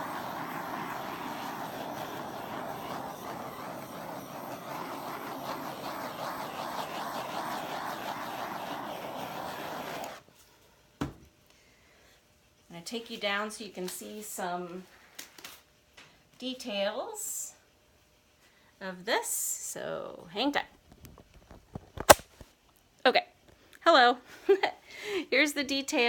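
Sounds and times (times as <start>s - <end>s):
torch flame hissing: 0.0s - 10.2s.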